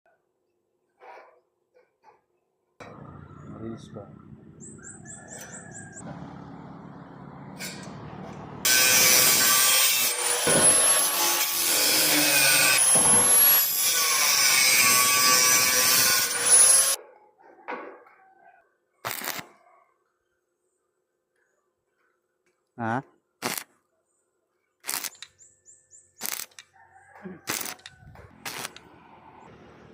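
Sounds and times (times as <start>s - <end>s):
angle grinder cutting steel: 7.6s - 17.0s, 27.5s - 28.9s.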